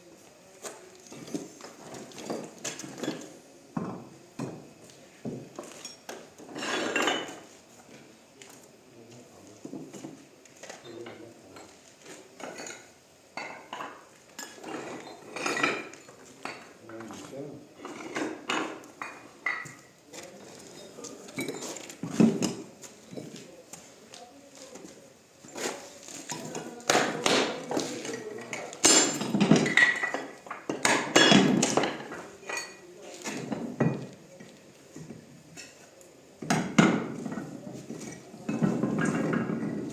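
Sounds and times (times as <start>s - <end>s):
clinks and knocks of stone: 0.6s - 7.5s, 12.4s - 16.8s, 17.8s - 23.5s, 26.2s - 39.9s.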